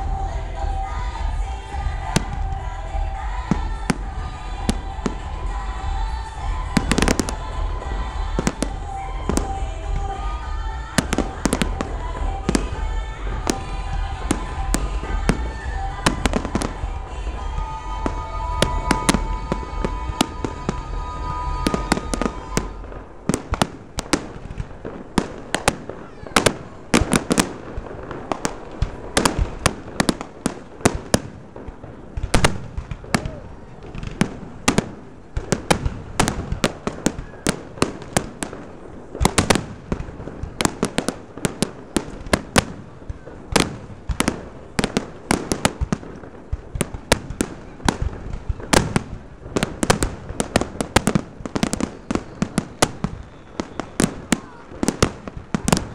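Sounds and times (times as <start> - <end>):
music with heavy bass: 0.0 - 22.9
fireworks bangs and crackling: 0.0 - 55.9.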